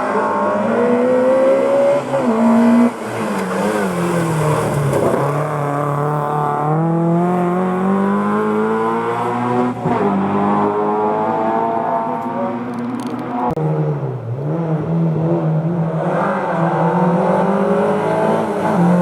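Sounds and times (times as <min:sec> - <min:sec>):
rally car engine at high revs: 0:00.0 - 0:19.0.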